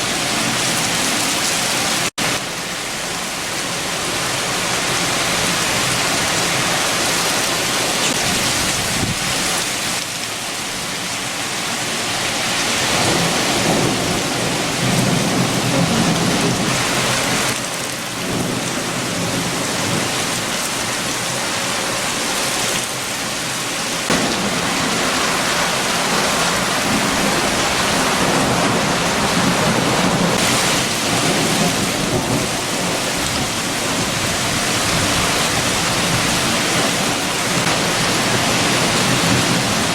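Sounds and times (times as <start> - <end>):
gusting wind: 0.0 - 39.9
heavy rain: 0.0 - 39.9.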